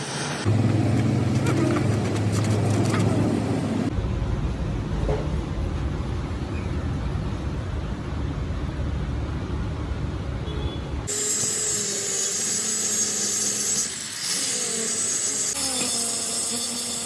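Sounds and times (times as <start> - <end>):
power tool hissing whine: 0.0 - 0.5, 11.1 - 17.0
machinery low rumble: 0.5 - 10.3.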